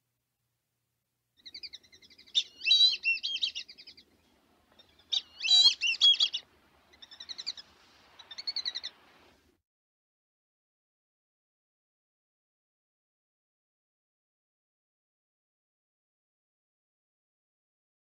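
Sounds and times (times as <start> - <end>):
songbird warbling chirps and trills: 1.4 - 9.0.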